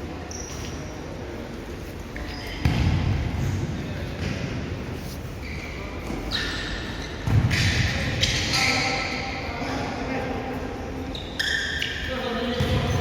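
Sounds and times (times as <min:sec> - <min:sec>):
shoe squeaks: 0:00.2 - 0:01.0, 0:02.2 - 0:02.7, 0:05.0 - 0:09.5, 0:11.0 - 0:13.0.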